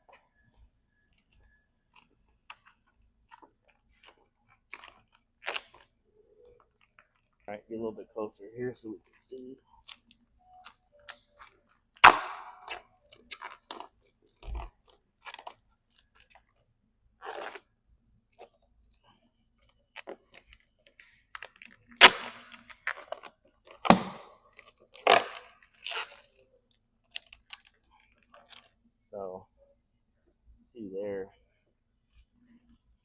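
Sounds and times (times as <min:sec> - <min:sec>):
vinyl film peeling off car paint: 0:19.4 - 0:26.4.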